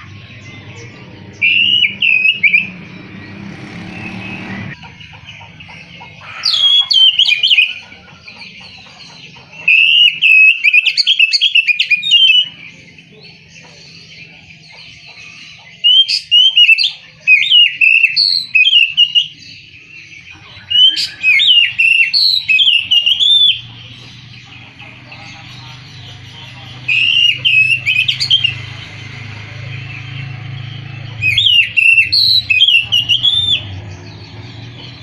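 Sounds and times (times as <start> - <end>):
bird singing whistled notes: 0.0 - 4.6, 9.6 - 13.1, 15.4 - 24.0, 26.9 - 28.7, 30.2 - 34.8.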